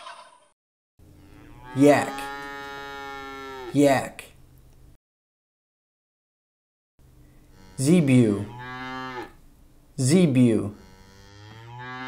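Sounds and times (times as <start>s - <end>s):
cow mooing: 1.2s - 3.8s, 7.5s - 9.4s, 10.6s - 12.0s.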